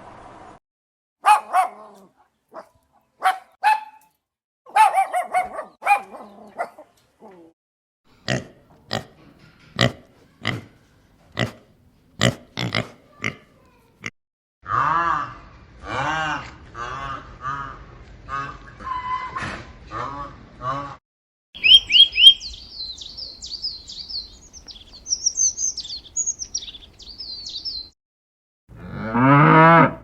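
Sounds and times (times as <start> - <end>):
high-pitched animal calls: 21.6 - 24.4.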